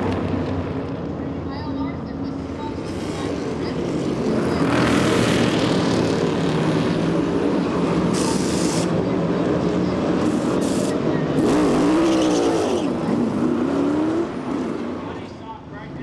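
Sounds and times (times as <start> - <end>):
droning engine: 0.0 - 16.0.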